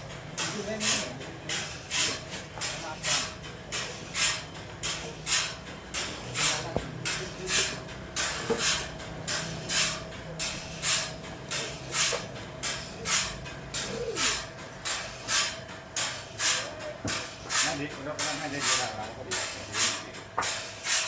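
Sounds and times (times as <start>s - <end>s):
rhythmic hissing strokes: 0.0s - 21.0s
steady machine hum: 0.0s - 21.0s.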